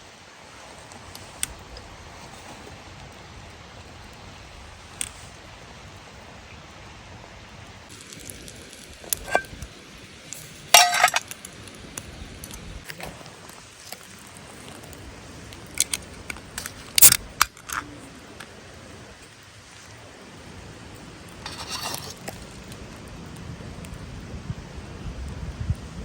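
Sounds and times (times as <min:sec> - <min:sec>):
metal objects clinking: 0:09.2 - 0:09.6, 0:10.7 - 0:11.4.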